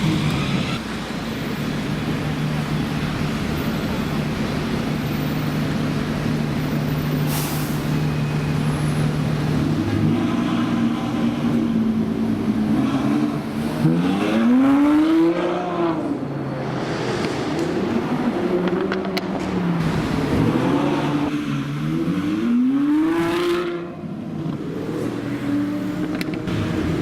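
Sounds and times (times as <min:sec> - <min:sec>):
short hiss: 0:07.3 - 0:07.9.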